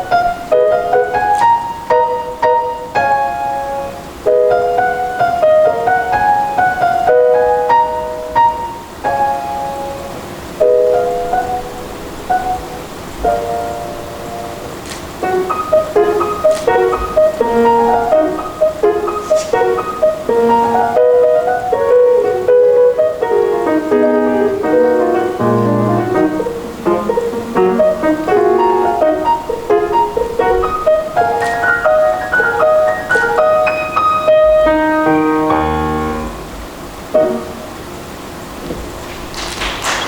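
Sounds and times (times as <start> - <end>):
solo piano: 0.0 - 40.0.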